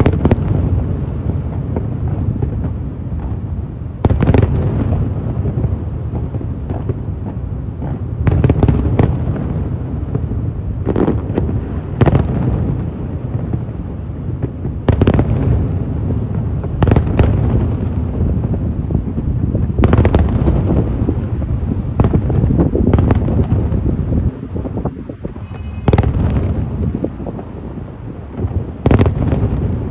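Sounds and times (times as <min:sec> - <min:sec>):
low rumble of explosions: 0:00.0 - 0:29.9
firework shells bursting: 0:25.2 - 0:26.8.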